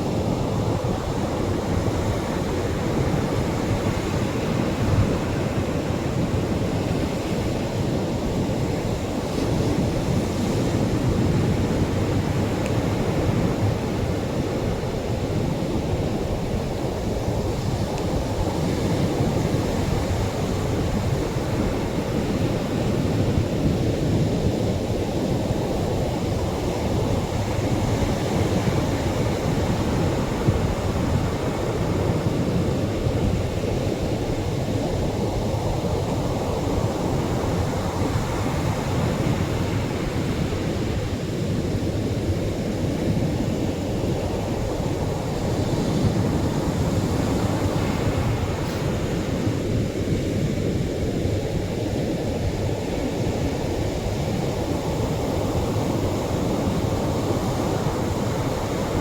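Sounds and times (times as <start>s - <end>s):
surf breaking on shore: 24.9s - 59.0s.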